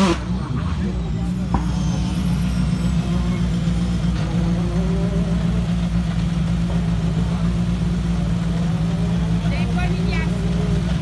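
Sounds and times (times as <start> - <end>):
faint rising engine note: 0.0 - 7.6
car engine idling: 0.0 - 11.0.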